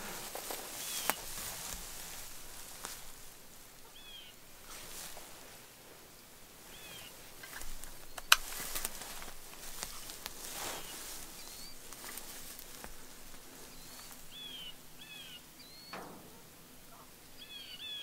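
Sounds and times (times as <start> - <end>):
soft rustling: 0.0 - 3.9, 4.6 - 14.8
high bird chirps: 13.7 - 16.0, 17.4 - 18.0.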